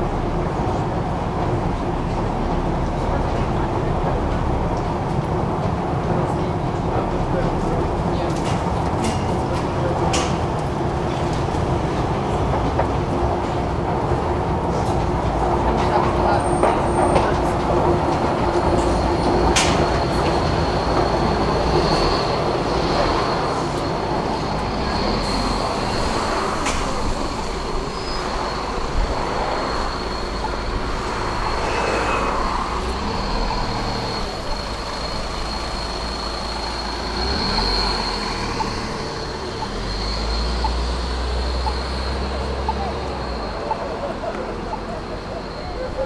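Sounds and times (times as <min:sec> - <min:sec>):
rail vehicle rumbling: 0:00.0 - 0:46.0
high wheel squeal: 0:18.5 - 0:46.0.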